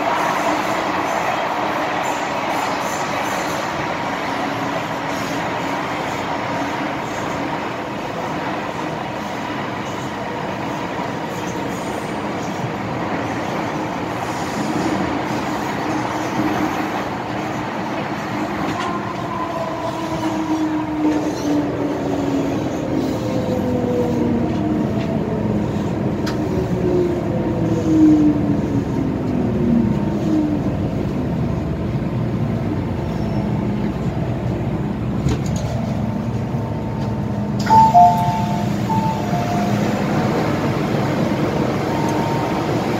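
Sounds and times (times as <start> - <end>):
bright two-note tone: 37.7 - 39.8.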